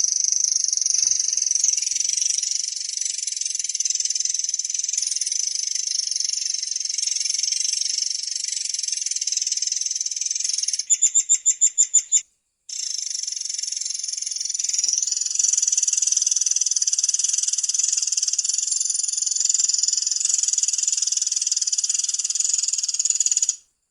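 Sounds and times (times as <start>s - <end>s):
bird high-pitched trilling song: 0.9s - 2.4s.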